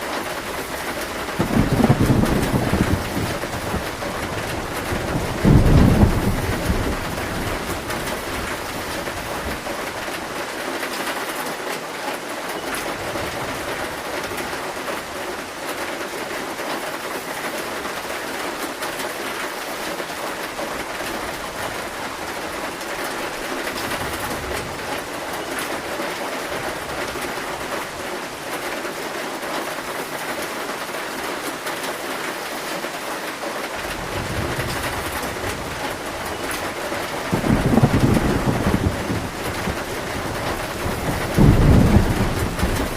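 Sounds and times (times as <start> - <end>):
heavy rain on a metal roof: 0.0 - 42.9
low thunder rumbling: 0.4 - 10.2, 33.8 - 42.9.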